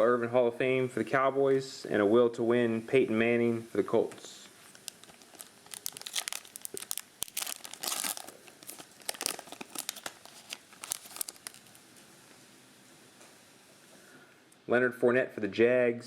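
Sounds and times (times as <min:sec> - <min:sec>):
foil wrapper crinkling and tearing: 0:04.6 - 0:11.8.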